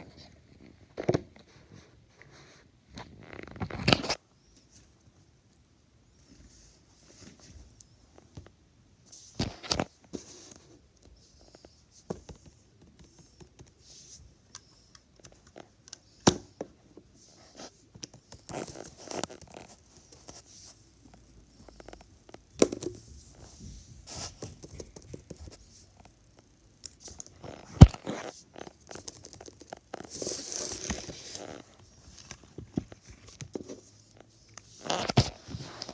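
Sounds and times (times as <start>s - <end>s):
crinkly rustling: 27.0s - 35.9s.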